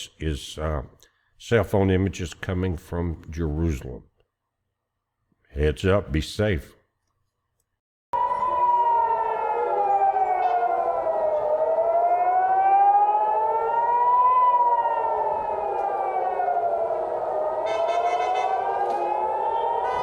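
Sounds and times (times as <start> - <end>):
air-raid siren wailing: 8.2 - 20.0.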